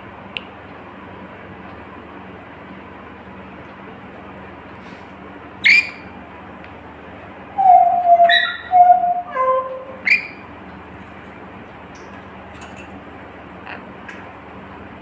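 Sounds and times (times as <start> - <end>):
bird whistling notes: 5.6 - 6.1, 7.6 - 10.4
bird sharp chirps: 7.7 - 9.3.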